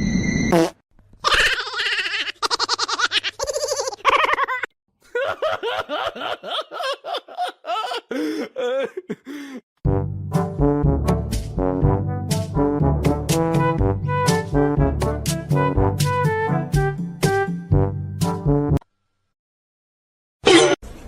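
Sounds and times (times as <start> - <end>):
person laughing high-pitched: 1.2 - 9.6
brass music: 9.8 - 18.8.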